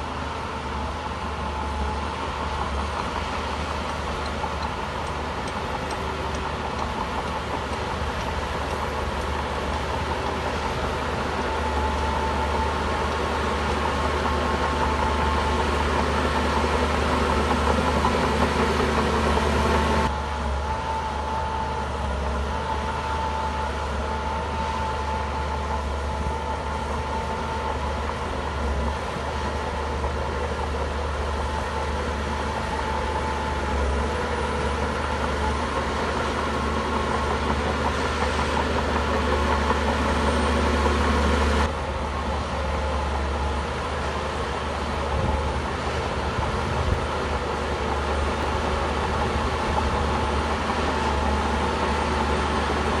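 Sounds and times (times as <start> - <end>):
bulldozer diesel engine droning: 0.0 - 53.0.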